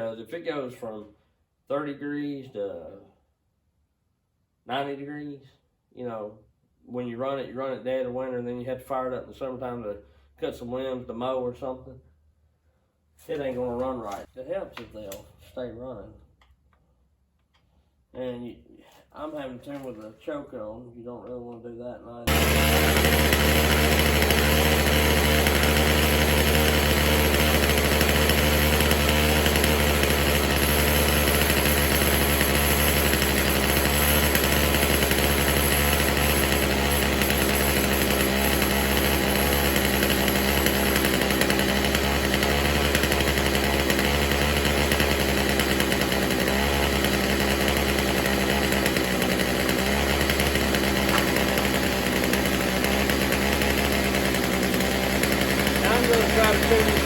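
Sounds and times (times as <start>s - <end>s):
chainsaw engine running low: 22.3s - 57.0s.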